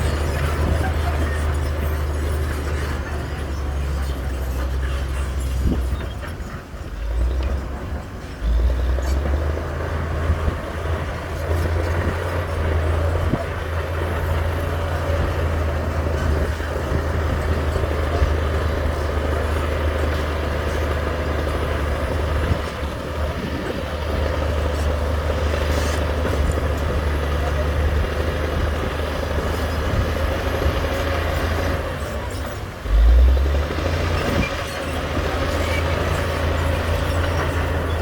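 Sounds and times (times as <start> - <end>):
diesel machinery engine drone: 0.0 - 38.0.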